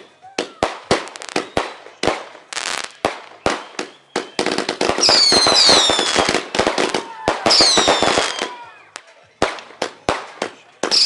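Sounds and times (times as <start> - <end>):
fireworks bangs and crackle: 0.0 - 11.0
firework whistles falling: 0.4 - 1.9, 2.7 - 8.7.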